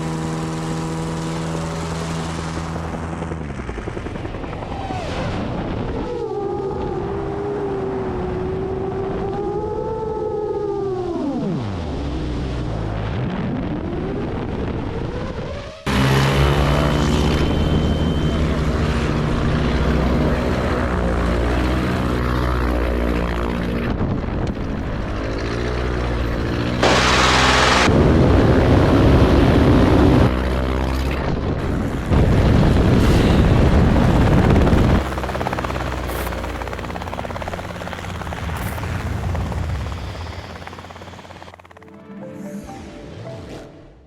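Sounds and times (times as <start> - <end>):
propeller plane engine: 0.0 - 13.2, 13.8 - 42.8
rushing noise: 24.6 - 29.8.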